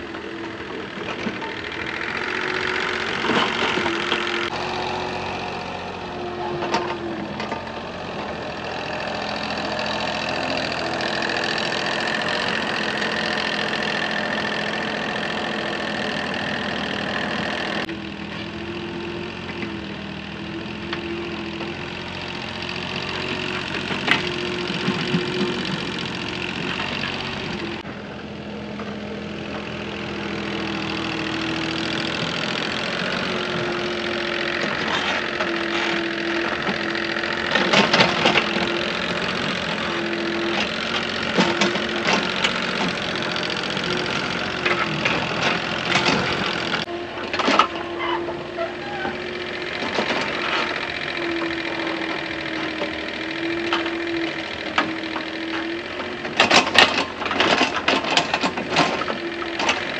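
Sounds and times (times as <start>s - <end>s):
engine running: 0.0s - 59.9s.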